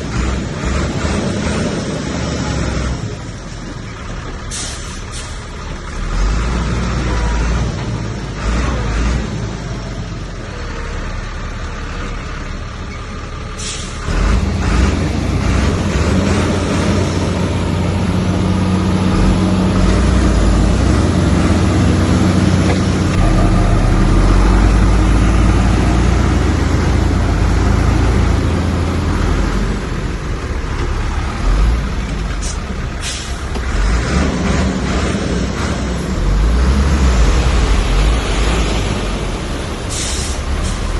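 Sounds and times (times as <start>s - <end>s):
diesel machinery engine drone: 0.0s - 40.9s
brief hisses: 39.9s - 40.8s.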